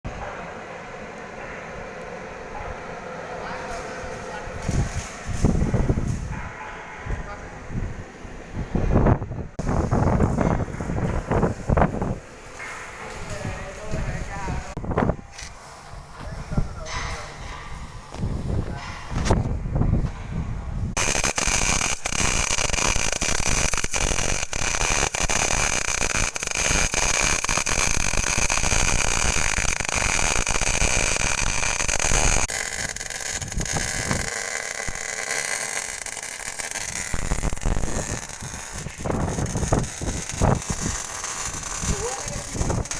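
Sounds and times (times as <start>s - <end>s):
welding arc crackling: 3.7s - 6.3s, 20.9s - 42.9s.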